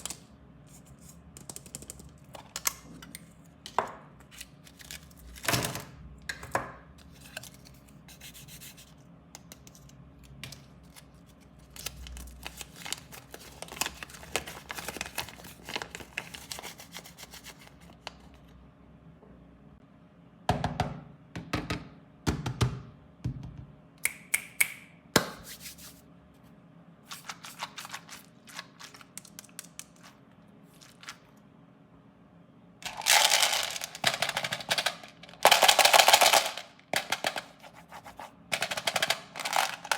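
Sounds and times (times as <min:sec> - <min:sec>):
plastic wrappers crinkling and tearing: 0:04.3 - 0:05.5, 0:10.5 - 0:18.0, 0:38.6 - 0:39.9.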